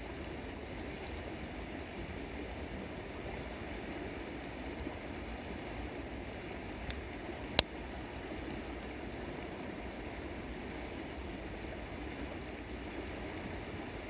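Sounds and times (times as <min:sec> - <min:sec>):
river water flowing: 0:00.0 - 0:14.0
campfire crackle: 0:04.3 - 0:14.0.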